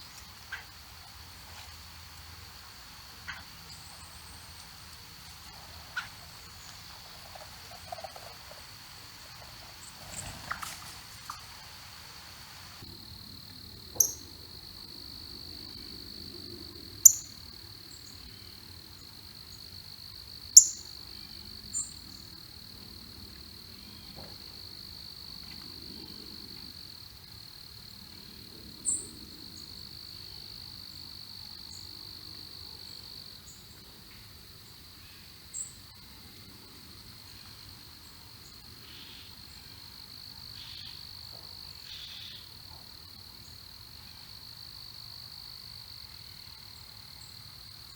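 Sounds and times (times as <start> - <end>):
high insect trill: 0.0 - 47.9.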